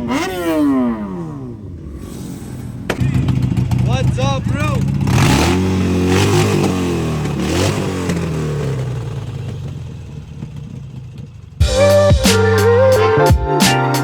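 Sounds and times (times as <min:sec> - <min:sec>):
engines revving: 0:00.0 - 0:12.9
background music: 0:11.6 - 0:14.0.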